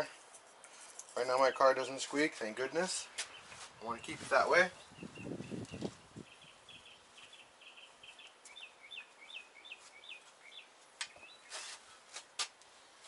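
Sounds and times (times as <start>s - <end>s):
rustle of parts handled: 0.0s - 1.3s, 9.8s - 13.0s.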